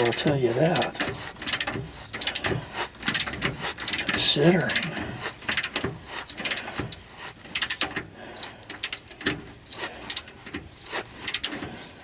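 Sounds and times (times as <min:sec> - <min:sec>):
ratchet wrench clicking: 0:00.0 - 0:04.9, 0:05.5 - 0:06.6, 0:07.5 - 0:07.8, 0:08.7 - 0:09.1, 0:11.2 - 0:11.6.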